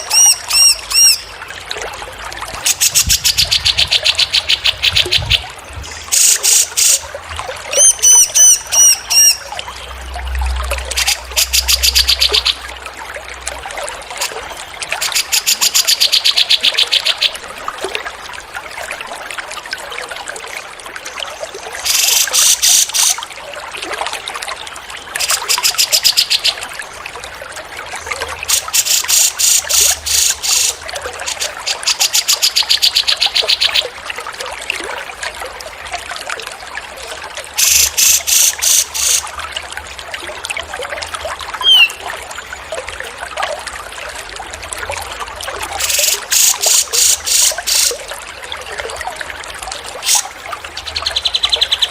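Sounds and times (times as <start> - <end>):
water trickling: 0.0 - 51.9
songbird dry trill: 41.6 - 42.0.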